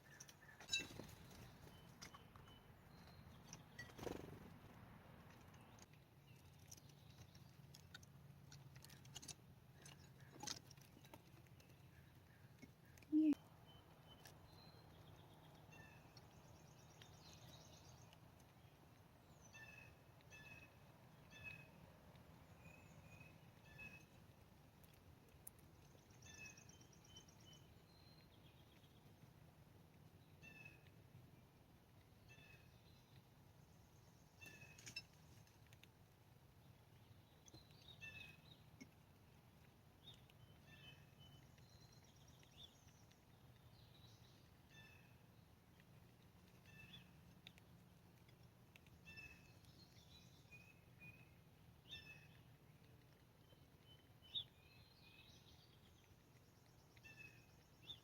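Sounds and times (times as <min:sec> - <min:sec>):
small clicks and taps: 0:34.4 - 0:44.5, 0:45.5 - 0:50.2.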